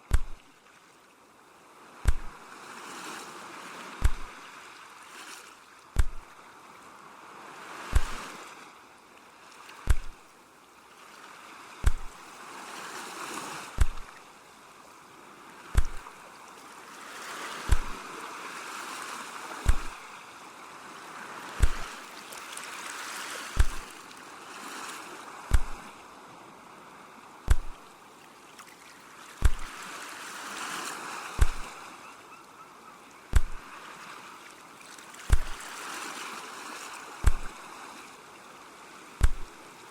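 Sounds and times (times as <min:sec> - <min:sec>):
sea waves washing in: 0:00.0 - 0:32.2, 0:33.2 - 0:39.9
deep sharp thumps: 0:00.1 - 0:00.4, 0:02.1 - 0:02.3, 0:04.0 - 0:04.3, 0:06.0 - 0:06.3, 0:08.0 - 0:08.2, 0:09.9 - 0:10.2, 0:11.8 - 0:12.2, 0:13.8 - 0:14.1, 0:15.8 - 0:16.0, 0:17.7 - 0:18.0, 0:19.7 - 0:20.0, 0:21.6 - 0:21.9, 0:23.6 - 0:23.9, 0:25.5 - 0:25.8, 0:27.5 - 0:27.8, 0:29.4 - 0:29.7, 0:31.4 - 0:31.7, 0:33.3 - 0:33.6, 0:35.3 - 0:35.6, 0:37.2 - 0:37.6, 0:39.2 - 0:39.5.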